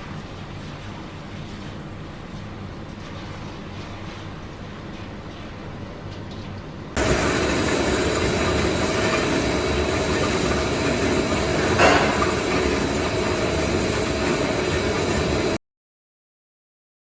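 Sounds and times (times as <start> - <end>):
machine running: 7.0 - 15.6.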